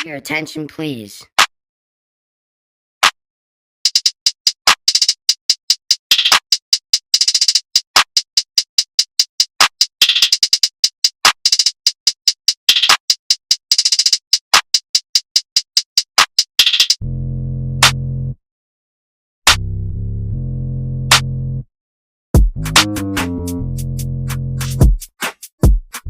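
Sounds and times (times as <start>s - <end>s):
drum machine clicking hits: 3.9s - 5.4s, 22.4s - 23.6s.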